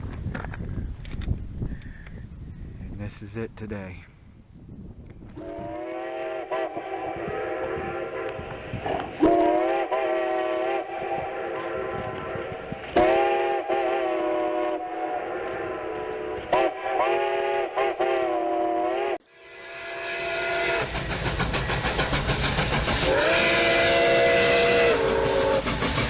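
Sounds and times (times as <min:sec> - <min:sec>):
steam locomotive whistle: 0:05.4 - 0:26.0.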